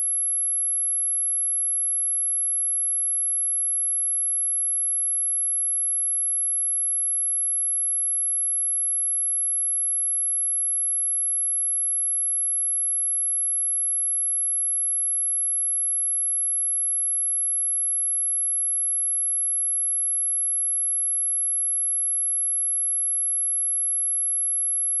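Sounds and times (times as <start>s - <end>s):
high-pitched sine test tone: 20.1s - 25.0s.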